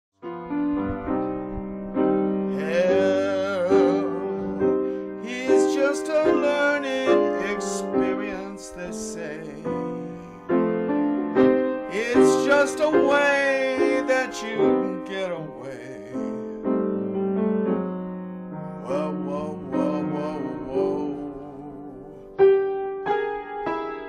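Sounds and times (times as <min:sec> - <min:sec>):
piano chords: 0:00.2 - 0:24.0
voice singing with wide vibrato: 0:02.5 - 0:10.5, 0:18.7 - 0:22.3.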